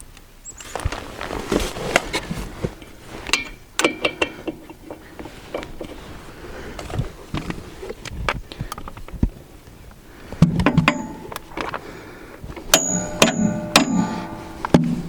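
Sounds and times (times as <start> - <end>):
sharp ringing metal strikes: 12.7 - 15.0
ringing metallic stretch: 12.8 - 14.8.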